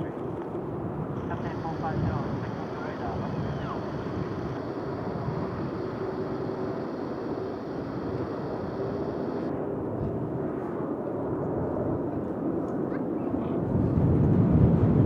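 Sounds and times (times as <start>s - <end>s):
jet engine rumble: 0.0s - 10.1s
high hiss: 1.2s - 9.5s.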